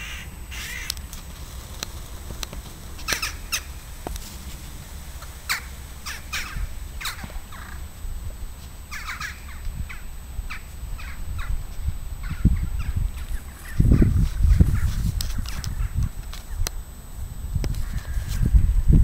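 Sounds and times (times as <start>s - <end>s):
birds calling: 0.0s - 17.0s, 17.7s - 18.9s
steady low rumble: 0.0s - 19.0s.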